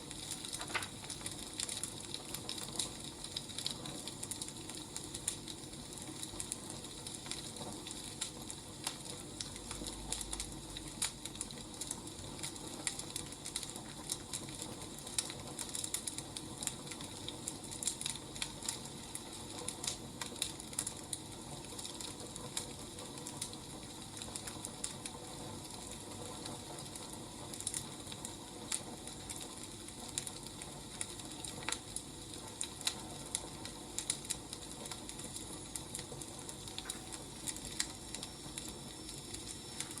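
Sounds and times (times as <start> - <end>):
firewood crackling: 0.0 - 40.0.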